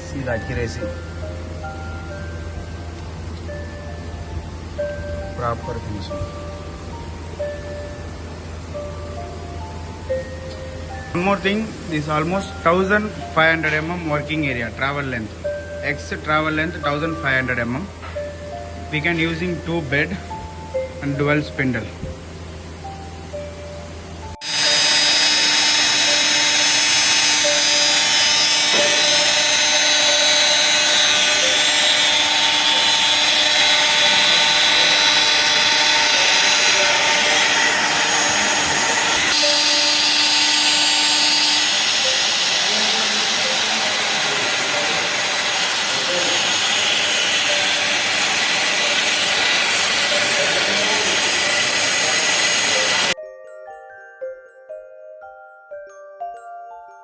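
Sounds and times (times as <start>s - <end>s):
machine spindle whine: 24.1s - 53.2s
hiss of cutting: 24.4s - 53.2s.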